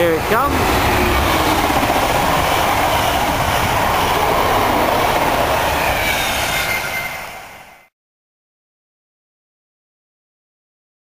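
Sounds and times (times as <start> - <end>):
train passing at speed: 0.0 - 7.9.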